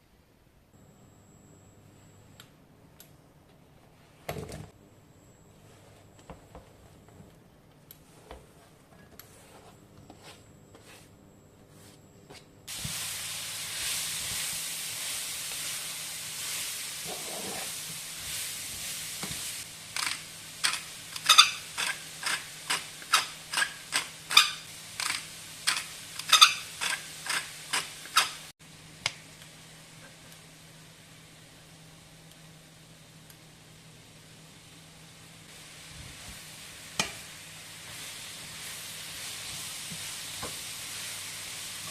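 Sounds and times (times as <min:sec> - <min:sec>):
food sizzling in a frying pan: 0:12.7 - 0:33.1, 0:33.8 - 0:41.9
utensil scraping a pan: 0:17.0 - 0:17.8, 0:20.0 - 0:28.4.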